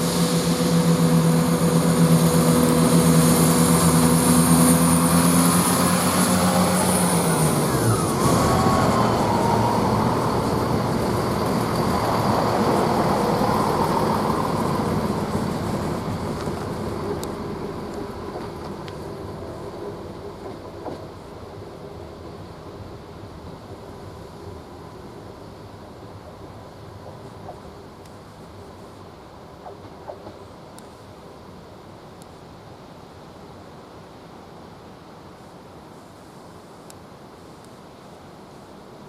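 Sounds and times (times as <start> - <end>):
diesel train engines pulling away: 0.0 - 27.9.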